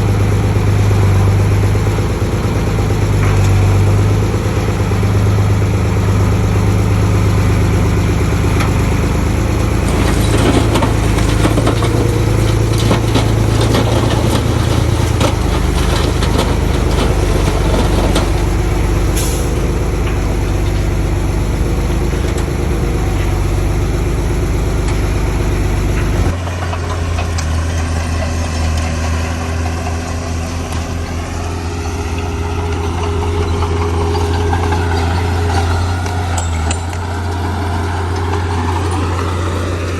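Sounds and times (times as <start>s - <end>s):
diesel earthmoving machinery running: 0.0s - 39.9s
rattling and clattering: 8.5s - 39.9s.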